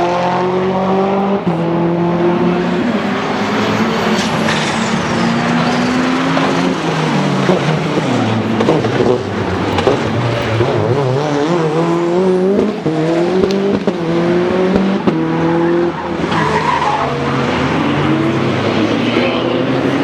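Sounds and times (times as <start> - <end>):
car engine accelerating hard: 0.0 - 20.0
tyres sliding: 15.0 - 20.0.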